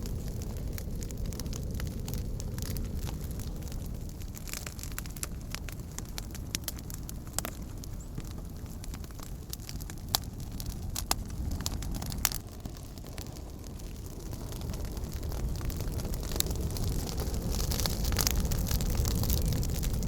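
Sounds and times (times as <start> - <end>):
campfire flames rumbling: 0.0 - 20.0
wood crackling and popping: 0.0 - 20.0.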